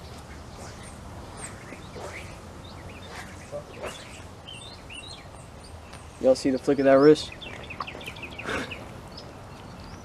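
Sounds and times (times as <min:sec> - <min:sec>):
small birds chirping: 0:00.0 - 0:10.0
soft swishes: 0:03.0 - 0:04.3.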